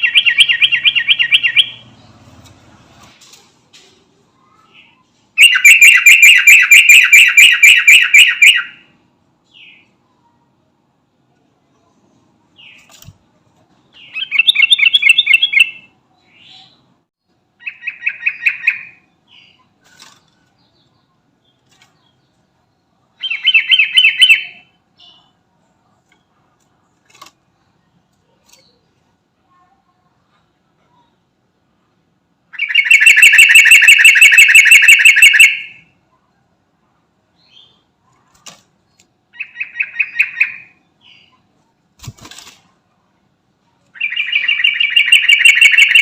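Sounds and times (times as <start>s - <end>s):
bird chattering calls: 0.0s - 1.8s, 5.4s - 8.8s, 32.6s - 35.8s, 44.0s - 46.0s.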